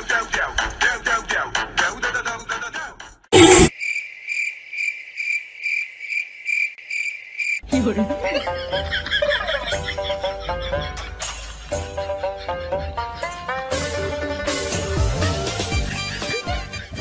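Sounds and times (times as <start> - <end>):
cricket chirping: 3.4 - 7.7.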